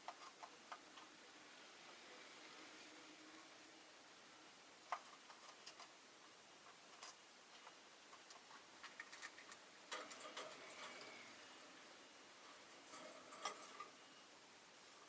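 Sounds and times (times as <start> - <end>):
birds clicking in a cage: 6.7 - 11.4.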